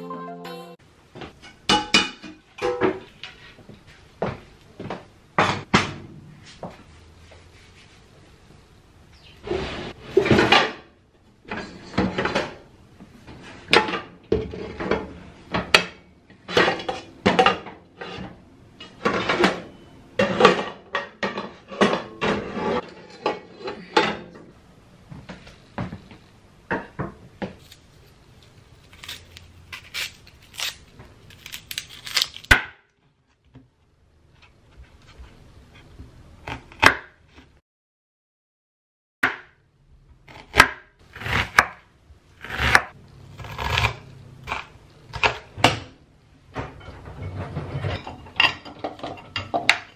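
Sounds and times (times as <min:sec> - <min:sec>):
items knocking and clattering: 0:01.1 - 0:06.1, 0:10.1 - 0:26.1, 0:45.2 - 0:49.9.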